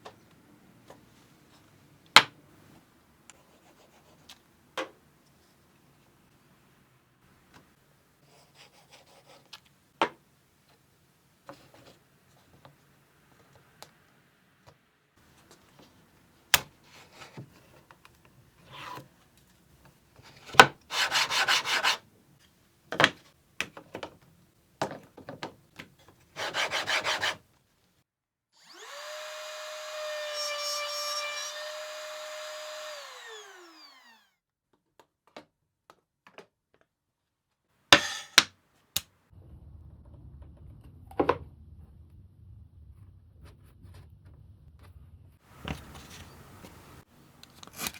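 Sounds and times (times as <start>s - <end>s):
sawing on wood: 20.9s - 22.0s, 26.4s - 27.4s, 28.7s - 34.2s
power tool motor running: 28.6s - 34.4s.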